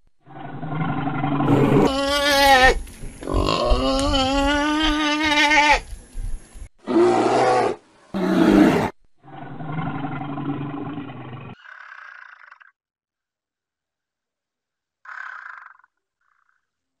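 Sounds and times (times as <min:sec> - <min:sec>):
bear growling and roaring: 0:00.2 - 0:04.6, 0:06.8 - 0:11.6.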